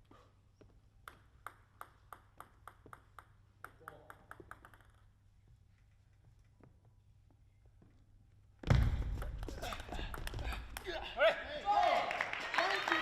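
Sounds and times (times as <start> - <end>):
table tennis ball bouncing: 1.0 - 5.2.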